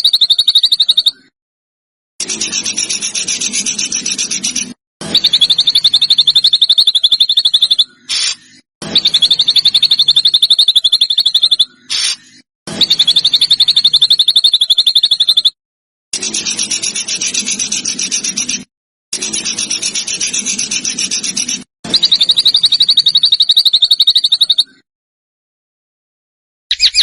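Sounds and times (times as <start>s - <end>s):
songbird trilling: 0.0s - 1.2s, 5.1s - 7.9s, 8.9s - 12.1s, 12.8s - 15.5s, 21.9s - 24.8s, 26.7s - 27.0s.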